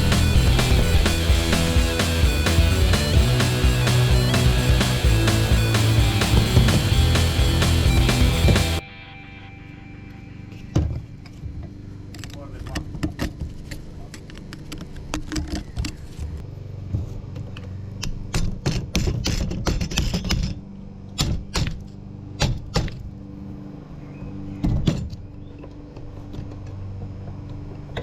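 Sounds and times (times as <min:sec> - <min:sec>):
steady low hum: 0:00.0 - 0:08.9.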